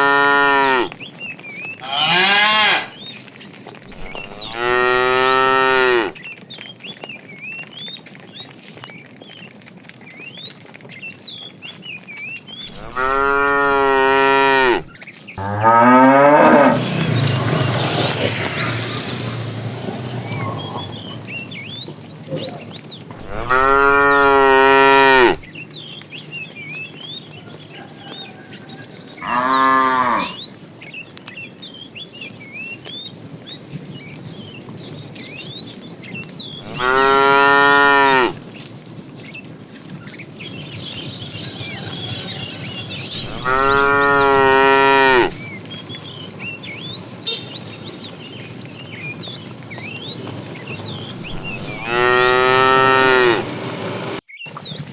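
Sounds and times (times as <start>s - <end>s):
cattle mooing: 0.0s - 1.0s, 1.8s - 3.0s, 3.9s - 6.2s, 12.7s - 17.3s, 23.2s - 25.5s, 29.2s - 30.4s, 36.6s - 38.4s, 41.7s - 45.4s, 51.2s - 53.6s.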